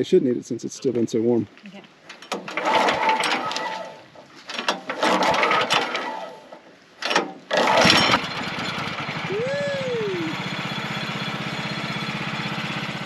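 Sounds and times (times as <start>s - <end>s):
small gasoline engine cranking: 2.3s - 4.0s, 4.6s - 13.0s.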